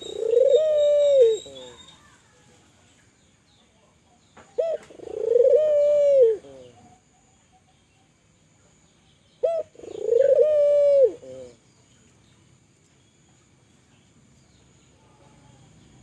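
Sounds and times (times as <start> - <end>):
dove cooing: 0.0 - 1.9, 4.6 - 7.0, 9.4 - 11.6.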